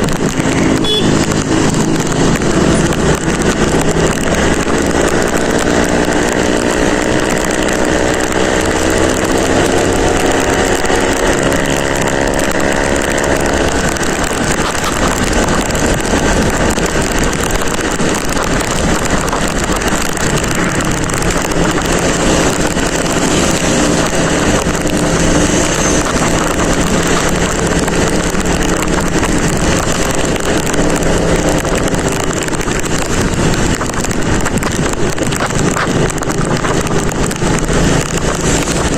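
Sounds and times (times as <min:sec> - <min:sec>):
motorcycle engine running: 0:00.0 - 0:38.9
wind noise on microphone: 0:00.0 - 0:38.9.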